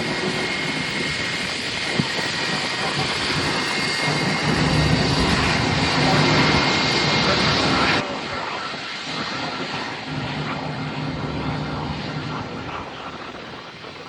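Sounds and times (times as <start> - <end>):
airliner engines rushing: 0.0 - 14.0
low hum: 3.2 - 8.0, 9.2 - 13.3.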